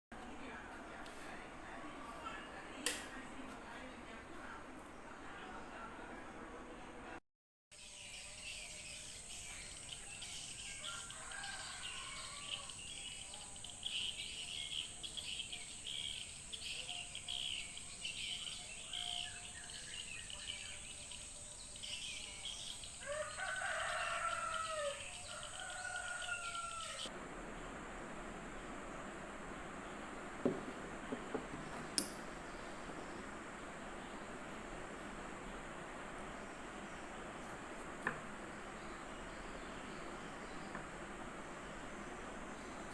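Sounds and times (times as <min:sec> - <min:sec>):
small birds chirping: 0:07.8 - 0:42.9
rooster crowing: 0:10.6 - 0:13.0, 0:23.0 - 0:27.1.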